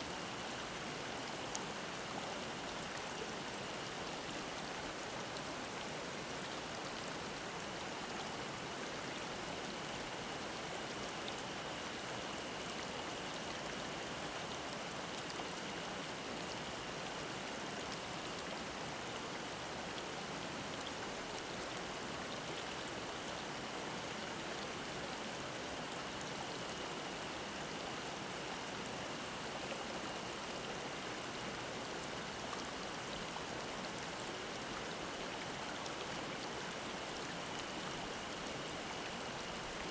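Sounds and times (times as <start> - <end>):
stream babbling: 9.4 - 39.9.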